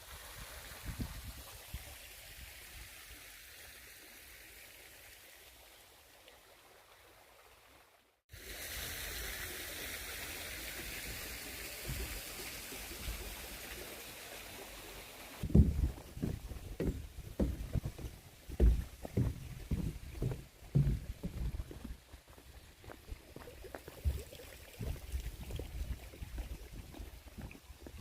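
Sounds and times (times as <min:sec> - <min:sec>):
running water hissing: 0:08.3 - 0:28.0
low rumbles: 0:15.4 - 0:22.0.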